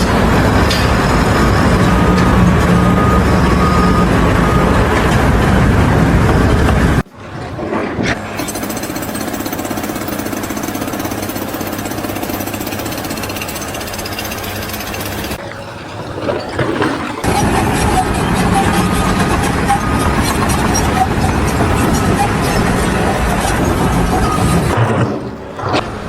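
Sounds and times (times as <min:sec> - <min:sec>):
machine humming: 0:00.0 - 0:26.0
construction breaker hammering: 0:08.3 - 0:26.0.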